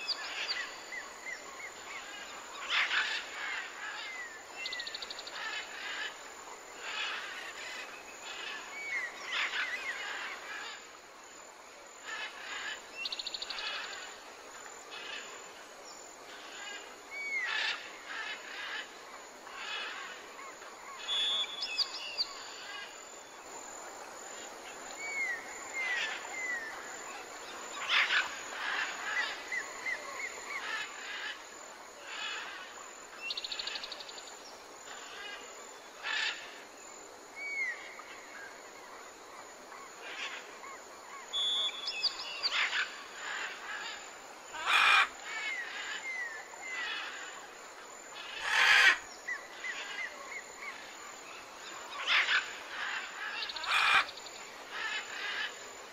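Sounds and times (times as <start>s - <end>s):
faint steady hiss: 0.0s - 55.9s
birds calling and singing: 41.2s - 44.0s.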